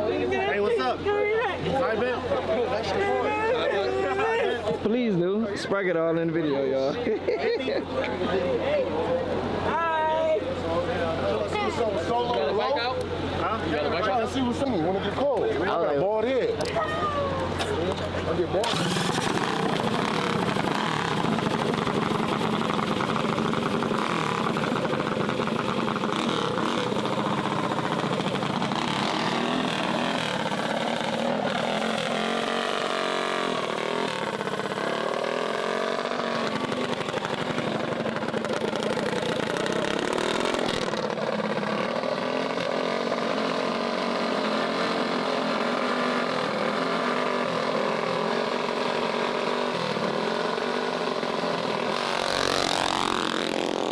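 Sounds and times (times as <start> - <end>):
small bike engines running: 10.1 - 53.9.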